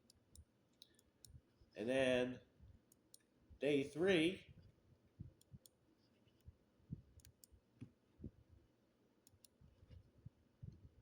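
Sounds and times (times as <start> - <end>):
computer mouse clicks: 0.0 - 1.4, 5.3 - 6.5, 7.2 - 7.9, 9.2 - 9.6.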